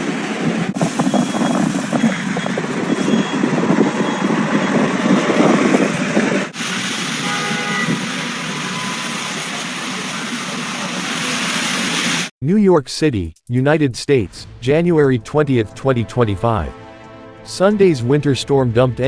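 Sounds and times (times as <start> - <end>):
street traffic: 0.0 - 12.3.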